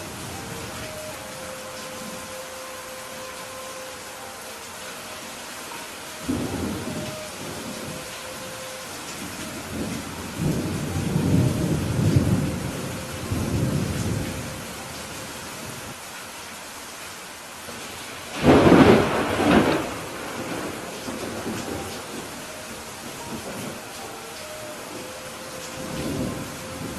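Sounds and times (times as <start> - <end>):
steady rain: 0.0 - 26.9
rolling thunder: 18.3 - 23.9.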